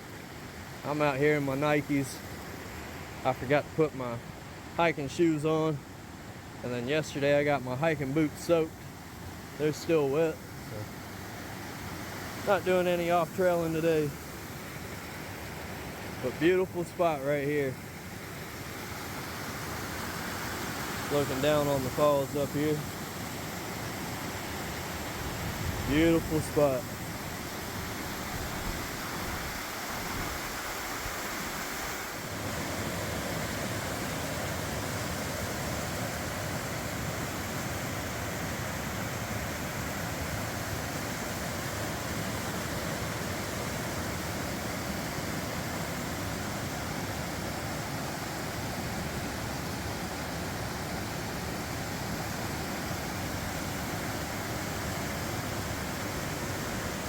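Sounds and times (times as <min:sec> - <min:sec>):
waterfall rushing: 0:07.6 - 0:57.0.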